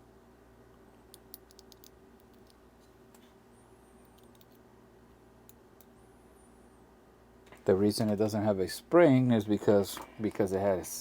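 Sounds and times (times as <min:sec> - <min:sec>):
tiny watch parts clicking: 0:01.1 - 0:02.6, 0:04.1 - 0:04.6.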